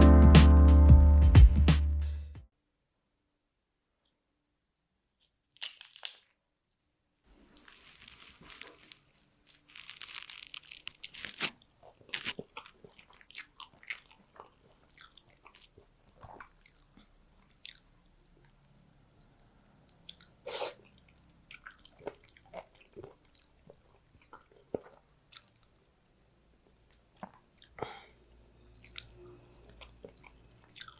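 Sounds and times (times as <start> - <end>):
crunchy bites: 5.6 - 6.4, 7.4 - 16.9
wet chewing: 7.3 - 18.6, 21.5 - 25.9, 28.7 - 30.9.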